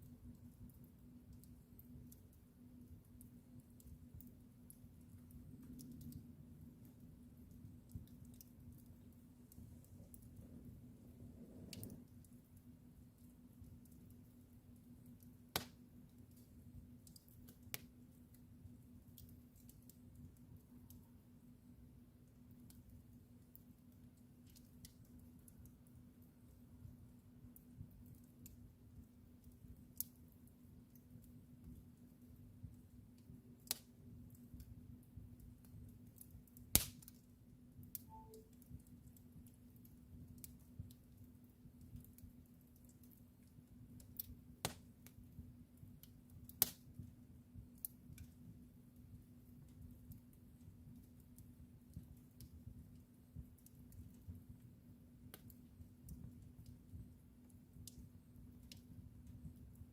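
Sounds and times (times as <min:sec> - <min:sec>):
faint steady hum: 0:00.0 - 0:59.9
wood fire crackling: 0:00.0 - 0:59.9
sharp fire pops: 0:15.5 - 0:15.8, 0:36.6 - 0:37.2, 0:44.2 - 0:44.9, 0:46.5 - 0:46.9
sharp pops of fire: 0:15.5 - 0:16.5, 0:33.6 - 0:33.9, 0:36.2 - 0:37.2, 0:44.0 - 0:45.2, 0:46.0 - 0:46.9.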